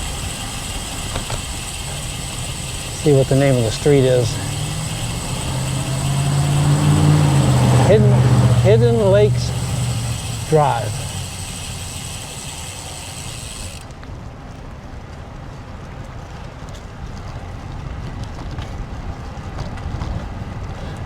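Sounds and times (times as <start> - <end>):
wind buffeting microphone: 14.1 - 21.0.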